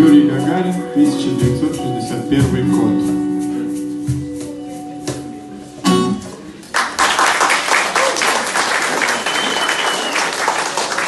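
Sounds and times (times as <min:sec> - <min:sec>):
audience applause: 0:06.7 - 0:11.0.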